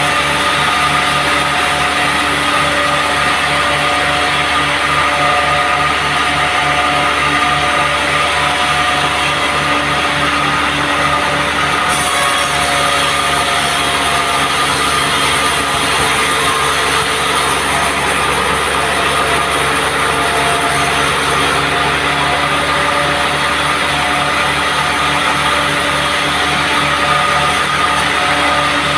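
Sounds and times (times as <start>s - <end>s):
band sawmill running: 0.0s - 28.9s.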